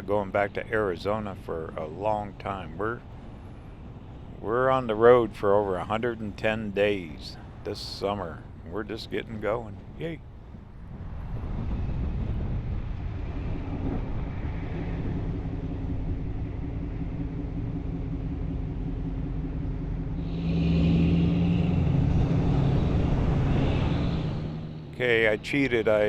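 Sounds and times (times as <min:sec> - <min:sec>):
vehicle cruising on highway: 0:00.0 - 0:26.0.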